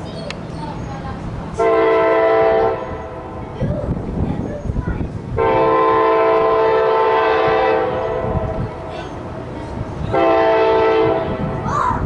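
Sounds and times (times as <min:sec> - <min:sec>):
train rumble: 0:00.0 - 0:12.0
locomotive air horn blast: 0:01.6 - 0:03.4, 0:05.4 - 0:08.9, 0:10.1 - 0:11.6.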